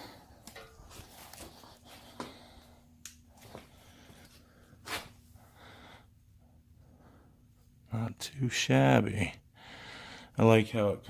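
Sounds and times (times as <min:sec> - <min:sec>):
faint steady hum: 0:00.0 - 0:11.0
breathing: 0:01.4 - 0:06.2, 0:06.8 - 0:07.5, 0:09.6 - 0:10.4.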